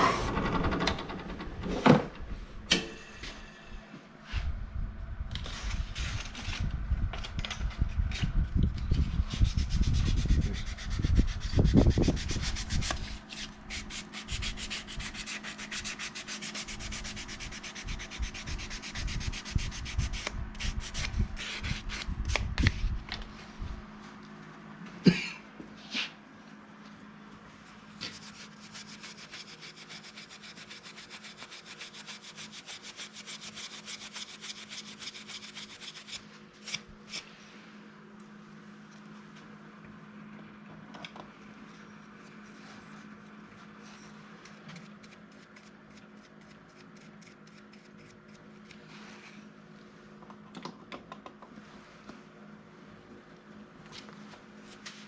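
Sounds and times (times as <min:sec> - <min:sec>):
sandpaper rubbing on wood: 0:09.3 - 0:22.0, 0:28.1 - 0:36.2.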